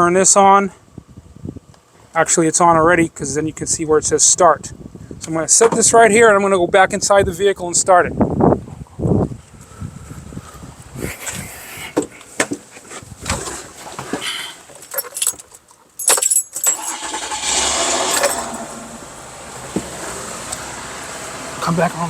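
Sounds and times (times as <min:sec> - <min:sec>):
keys jangling: 0:14.8 - 0:17.2, 0:18.1 - 0:18.5
car engine starting: 0:16.2 - 0:22.0.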